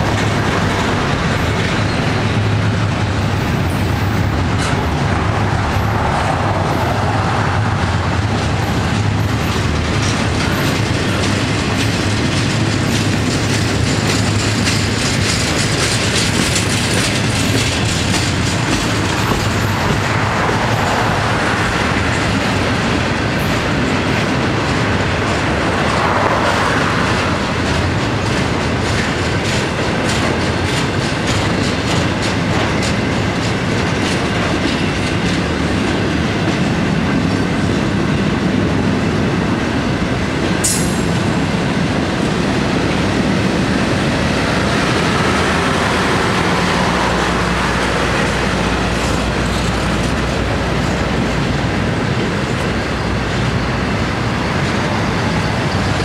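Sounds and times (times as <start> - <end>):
wheels clicking over track: 0.0 - 37.9
steel wheels rumbling on rails: 0.0 - 56.0.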